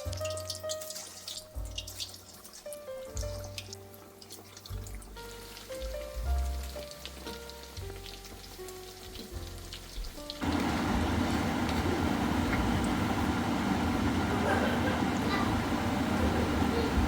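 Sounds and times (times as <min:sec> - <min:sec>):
soft instrumental music: 0:00.0 - 0:10.4.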